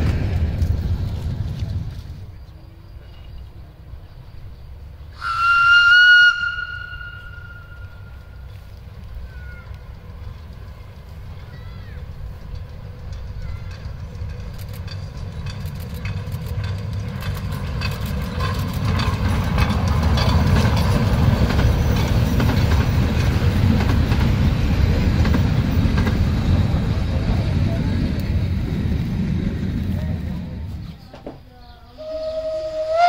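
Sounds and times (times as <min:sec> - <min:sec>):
wheels clicking over rail joints: 0:00.0 - 0:03.6, 0:05.2 - 0:33.0
railcar rumbling past: 0:00.0 - 0:33.0.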